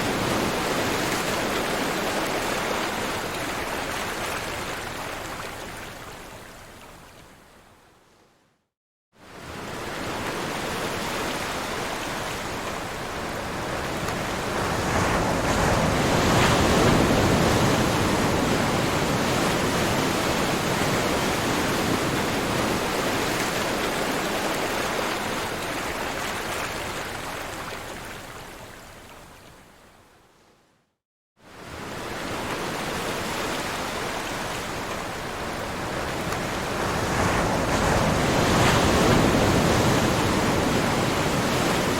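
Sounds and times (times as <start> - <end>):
ocean waves breaking: 9.4 - 27.8, 31.6 - 41.9.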